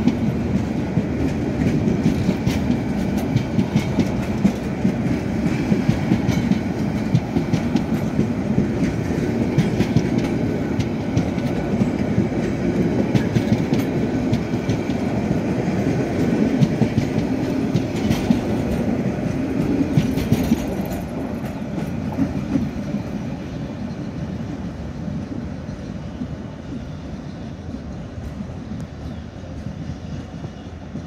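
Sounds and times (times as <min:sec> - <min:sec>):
wheels clacking over rail joints: 0:00.0 - 0:23.2
freight train rumble: 0:00.0 - 0:31.0.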